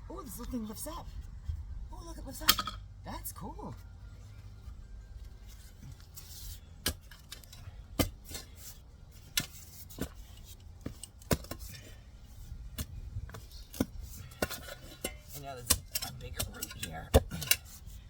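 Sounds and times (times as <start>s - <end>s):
shovel striking soil and roots: 6.0s - 11.9s, 12.7s - 18.0s.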